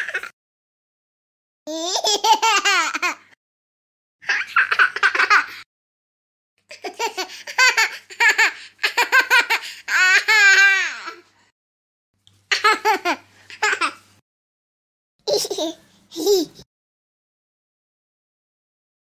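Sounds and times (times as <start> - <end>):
baby giggling: 0.0 - 0.3, 1.7 - 3.2, 4.2 - 5.6, 6.7 - 11.2, 12.5 - 14.0, 15.3 - 16.6
baby squealing with laughter: 0.0 - 0.3, 6.9 - 11.2.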